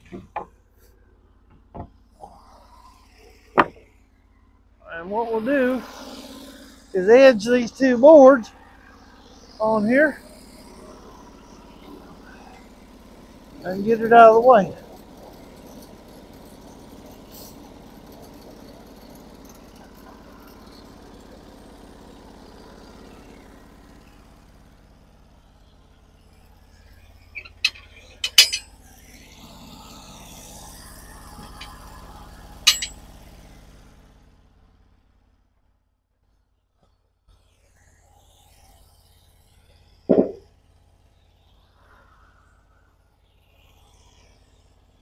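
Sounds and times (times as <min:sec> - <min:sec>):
engine idling: 0:00.0 - 0:35.9, 0:36.8 - 0:45.0
wood and metal clanking: 0:01.5 - 0:02.0, 0:03.6 - 0:03.8, 0:27.4 - 0:28.7, 0:32.7 - 0:33.0, 0:40.1 - 0:40.4.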